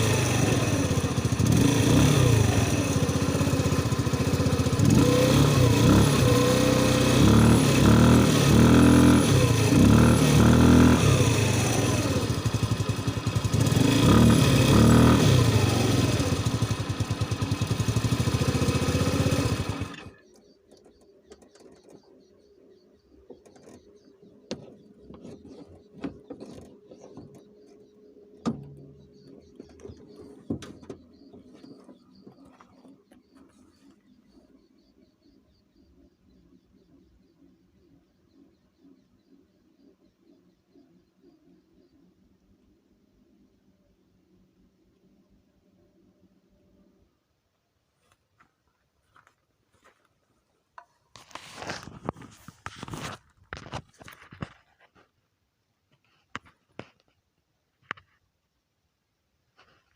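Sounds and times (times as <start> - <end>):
car engine revving: 0.0 - 20.4
faint engine ticks: 11.0 - 42.1.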